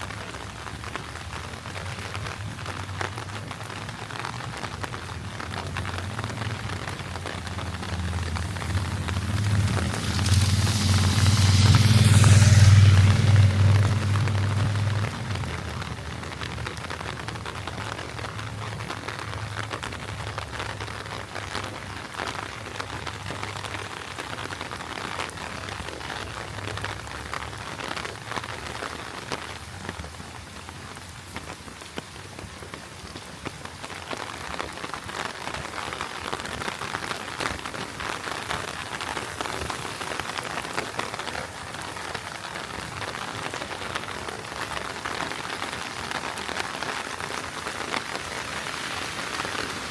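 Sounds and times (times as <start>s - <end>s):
heavy rain falling: 0.0s - 49.9s
low hum: 6.4s - 16.3s.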